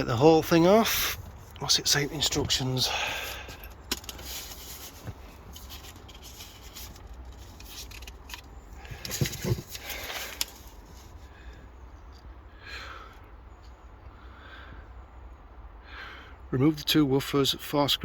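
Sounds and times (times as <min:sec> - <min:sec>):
light scraping and rubbing: 0:00.7 - 0:11.3.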